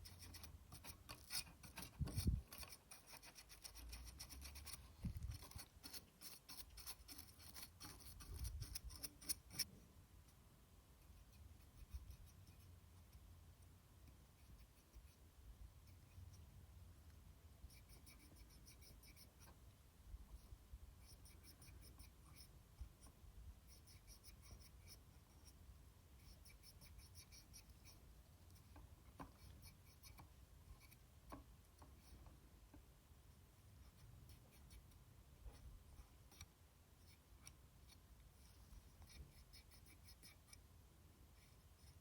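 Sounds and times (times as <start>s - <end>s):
brush scrubbing plastic fan: 0.0s - 9.7s.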